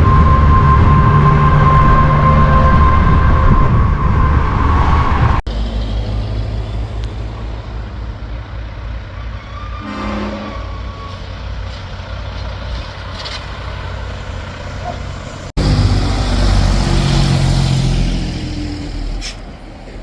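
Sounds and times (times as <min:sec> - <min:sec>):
truck engine rumbling with whine: 0:00.0 - 0:20.0.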